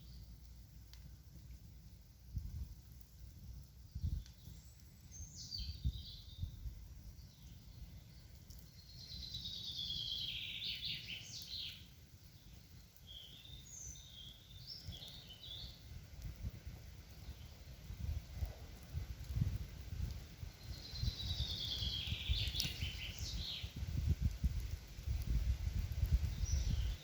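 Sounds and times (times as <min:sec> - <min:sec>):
songbirds singing: 0:00.0 - 0:00.5, 0:03.5 - 0:17.8, 0:20.2 - 0:24.2, 0:25.2 - 0:27.0.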